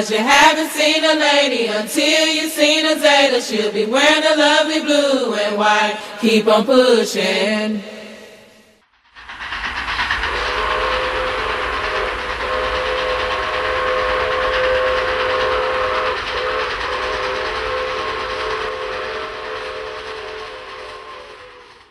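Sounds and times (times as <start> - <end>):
train rushing and rumbling: 9.0 - 21.9
train whistle blasts: 10.3 - 21.9.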